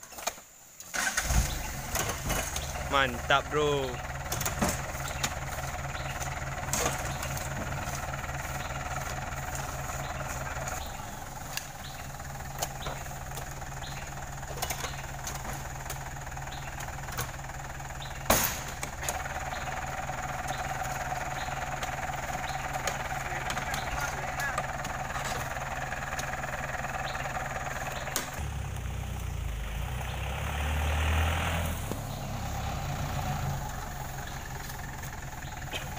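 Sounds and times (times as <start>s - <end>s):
engine idling: 0.6s - 35.9s
fruit bunches thudding into truck: 4.3s - 8.0s, 18.1s - 19.3s.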